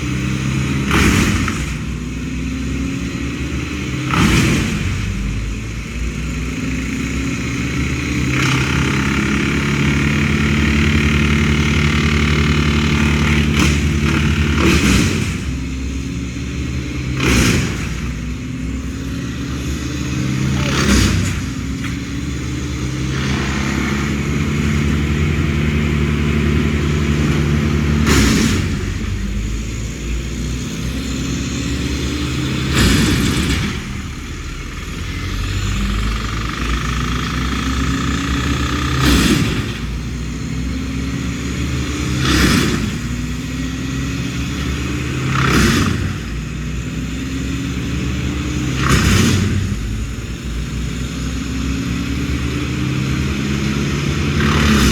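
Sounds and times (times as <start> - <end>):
engine running: 0.0 - 54.9
loud whooshing surge: 20.2 - 26.5.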